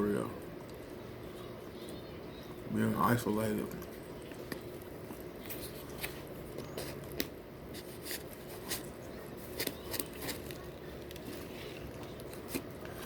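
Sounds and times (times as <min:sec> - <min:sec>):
person chewing food: 0:04.1 - 0:13.0.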